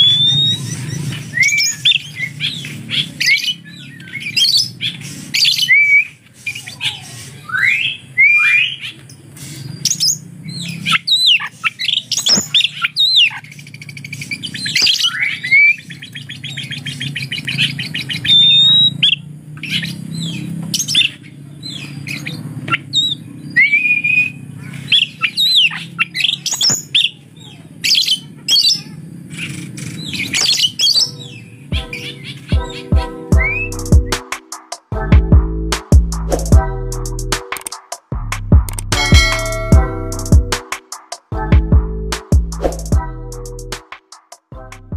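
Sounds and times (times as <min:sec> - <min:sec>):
songbird whistling and trilling: 0:00.0 - 0:08.9, 0:09.6 - 0:27.2, 0:30.0 - 0:34.3.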